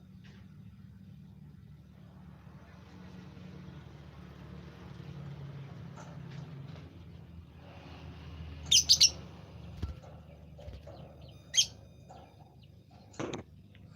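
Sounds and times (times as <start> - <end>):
songbird chirping: 8.6 - 9.3, 10.2 - 13.9.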